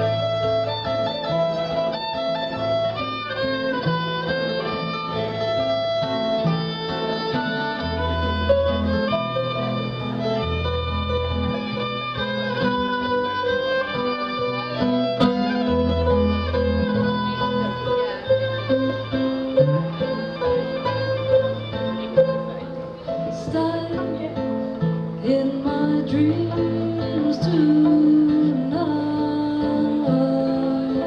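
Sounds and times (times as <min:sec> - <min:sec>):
fiddle melody: 0:00.0 - 0:31.0
guitar: 0:00.0 - 0:31.0
low bass notes: 0:07.8 - 0:29.5.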